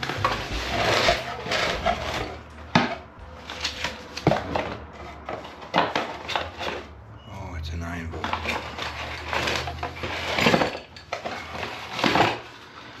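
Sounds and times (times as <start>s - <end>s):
rustling: 0.0s - 6.9s.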